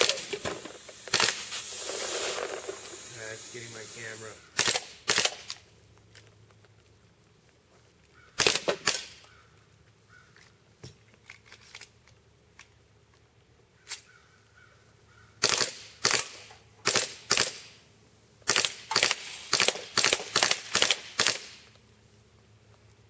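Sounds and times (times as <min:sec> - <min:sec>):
airsoft pistol shots: 0:00.0 - 0:01.9, 0:04.5 - 0:05.5, 0:15.4 - 0:17.7, 0:18.5 - 0:21.6.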